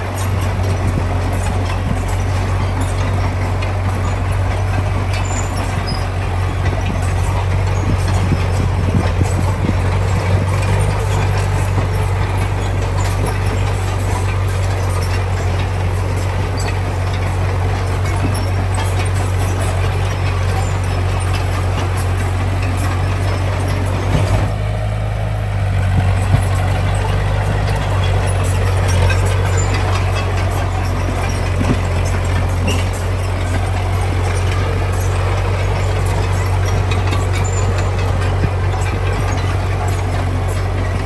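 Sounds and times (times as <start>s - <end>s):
engine knock: 0.0s - 41.0s
heavy diesel engine humming: 0.0s - 41.0s
faint metal clanks: 25.6s - 41.0s.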